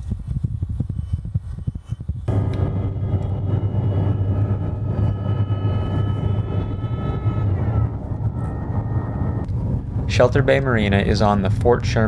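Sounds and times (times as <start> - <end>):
faint high whine: 1.0 - 10.8.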